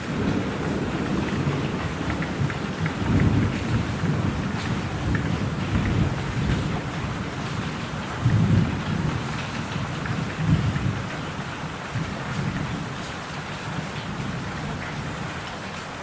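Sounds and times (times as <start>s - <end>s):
rolling thunder: 0.0s - 11.1s
steady rain: 0.0s - 16.0s.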